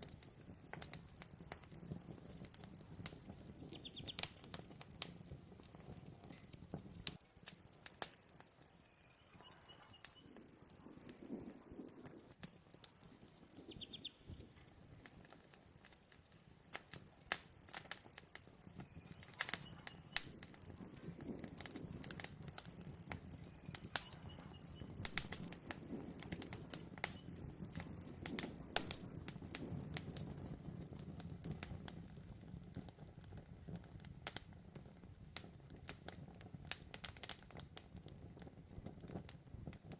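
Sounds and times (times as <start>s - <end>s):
crickets chirping: 0.0s - 31.2s
campfire crackling: 0.0s - 39.9s.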